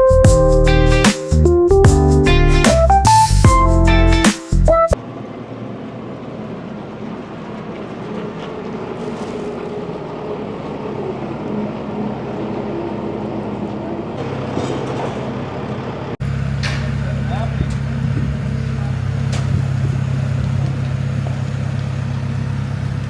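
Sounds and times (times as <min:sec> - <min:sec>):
diesel engine running: 0:04.9 - 0:23.0.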